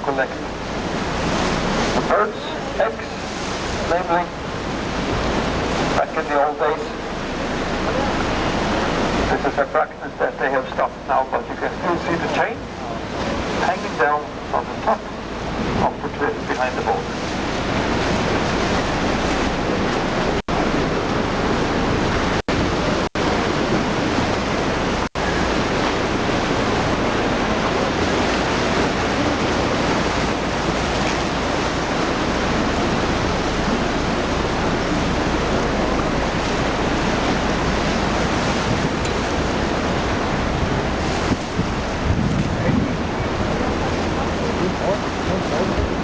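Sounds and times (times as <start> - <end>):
sea noise: 0.0 - 46.0
wind on microphone: 17.1 - 46.0.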